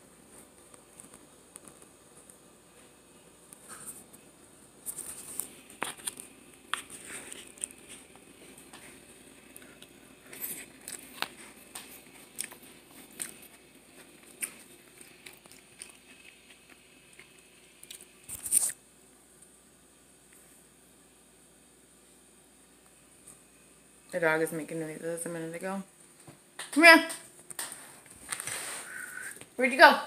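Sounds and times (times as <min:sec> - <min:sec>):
person chewing food: 0:04.9 - 0:18.8.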